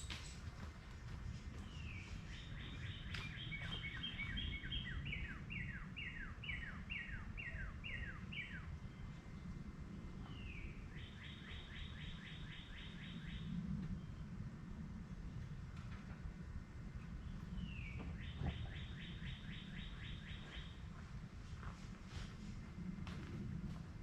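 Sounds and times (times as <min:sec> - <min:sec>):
low background rumble: 0:00.0 - 0:24.0
songbird whistling: 0:01.8 - 0:08.7, 0:10.3 - 0:13.5.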